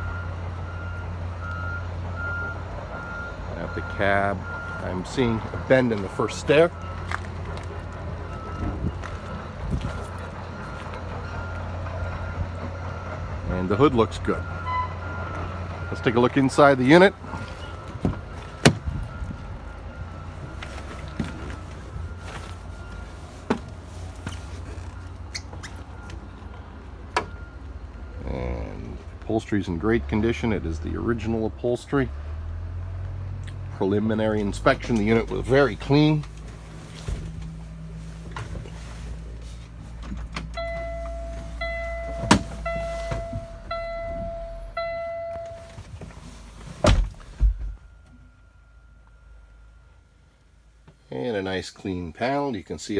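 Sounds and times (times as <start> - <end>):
truck cab warning chime: 0.0 - 32.6, 33.7 - 52.7
low steady rumble: 0.0 - 51.6
truck door and step clicks: 17.9 - 19.1, 40.0 - 46.2
steady low rumble: 34.0 - 50.7
heavy thumps: 39.9 - 47.9.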